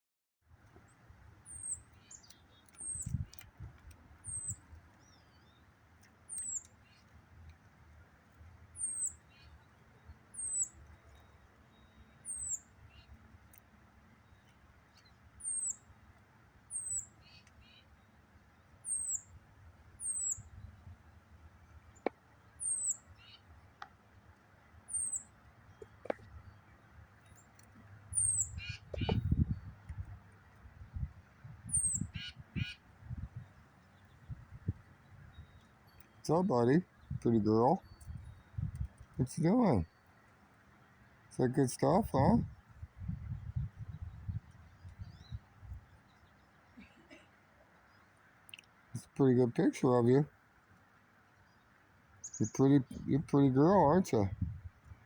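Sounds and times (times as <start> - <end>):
small bird call notes: 0.8 - 3.6, 4.2 - 7.2, 8.4 - 16.0, 16.6 - 19.4, 20.0 - 21.1, 21.7 - 23.9, 24.7 - 30.6, 31.7 - 42.7, 51.4 - 54.2.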